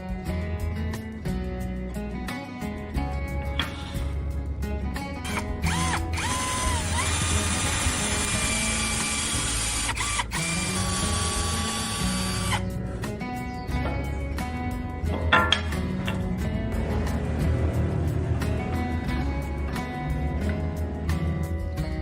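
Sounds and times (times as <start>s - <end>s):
background music: 0.0s - 22.0s
power tool motor whirring: 5.3s - 12.6s.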